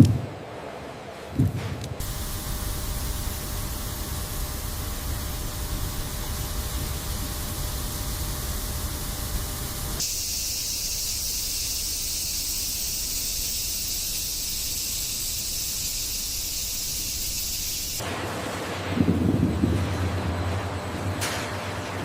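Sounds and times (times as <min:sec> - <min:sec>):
high-pitched hiss: 0:02.0 - 0:18.0
low mechanical rumble: 0:02.0 - 0:22.0.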